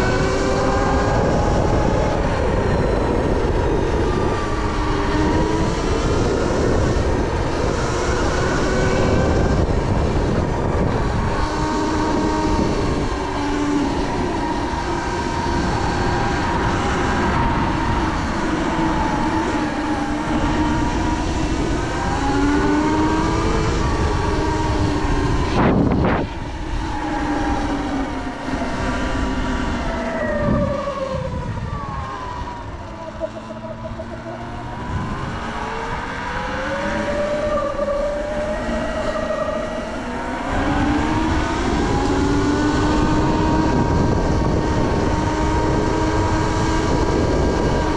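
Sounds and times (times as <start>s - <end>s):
electric dirt bike motor whining: 0.0s - 31.0s
low rushing wind: 0.0s - 47.9s.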